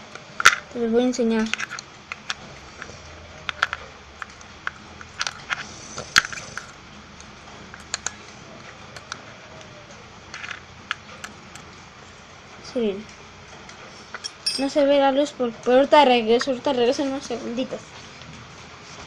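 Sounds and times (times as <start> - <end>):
fidget spinner clicks and taps: 1.3 - 8.2.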